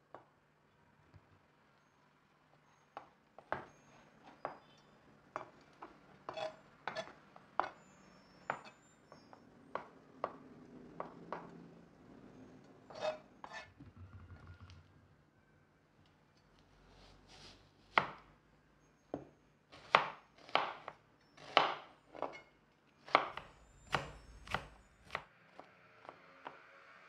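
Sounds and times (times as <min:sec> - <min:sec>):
knife striking cutting board: 0:23.1 - 0:25.2.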